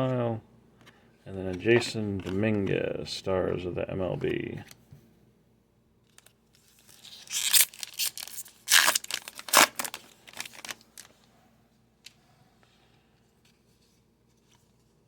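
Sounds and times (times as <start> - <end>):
wrapper tearing and crinkling: 6.2 - 11.1.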